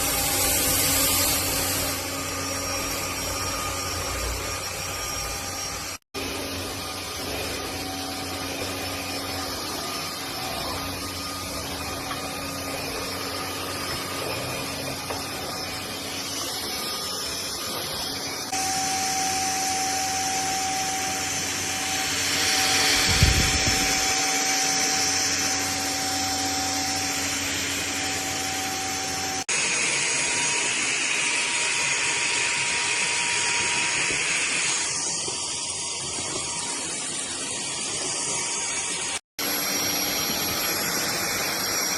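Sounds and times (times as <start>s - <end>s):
stick vacuum running: 0.0s - 41.9s.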